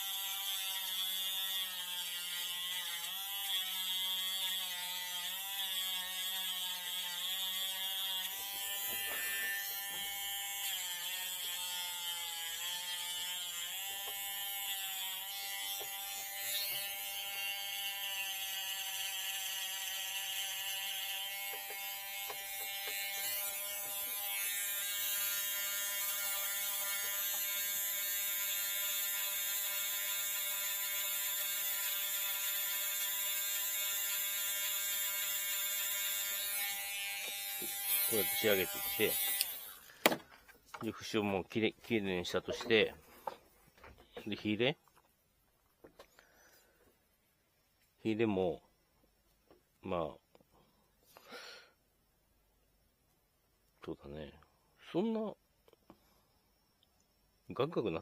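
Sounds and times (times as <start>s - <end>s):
rotary tool grinding bamboo: 0.0s - 45.1s.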